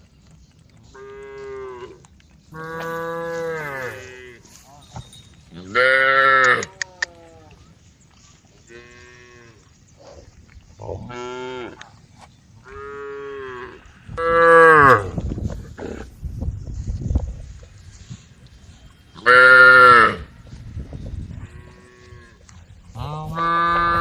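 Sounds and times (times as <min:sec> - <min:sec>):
cows mooing: 0:01.0 - 0:07.5, 0:12.6 - 0:16.1, 0:19.2 - 0:20.3, 0:21.4 - 0:24.0.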